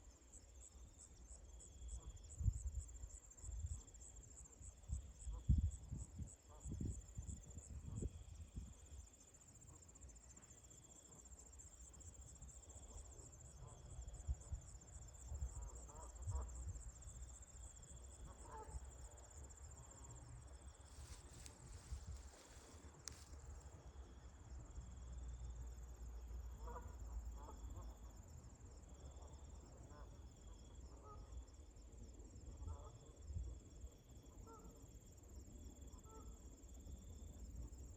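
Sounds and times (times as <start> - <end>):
insects trilling: 16.4 - 23.6.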